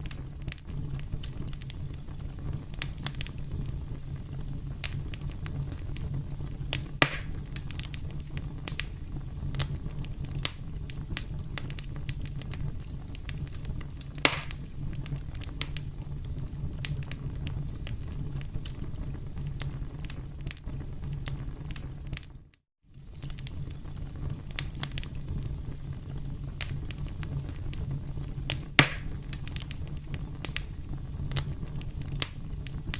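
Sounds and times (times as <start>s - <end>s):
campfire crackling: 0.0s - 22.3s, 22.9s - 32.9s.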